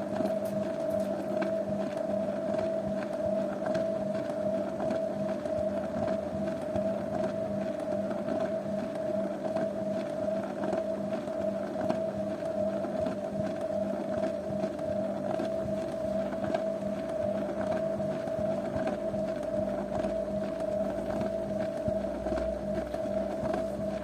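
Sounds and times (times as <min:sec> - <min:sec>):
washing machine motor whine: 0:00.0 - 0:24.0.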